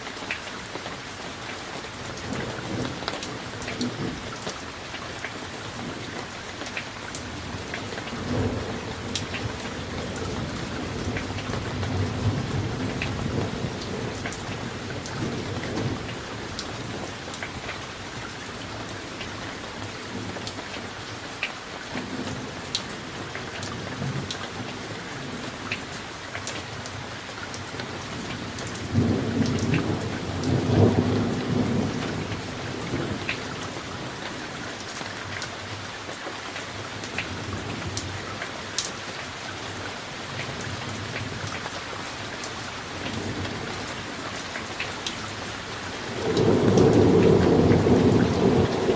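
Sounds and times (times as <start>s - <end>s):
steady rain: 0.0s - 48.9s
thunder rolling: 46.1s - 48.9s.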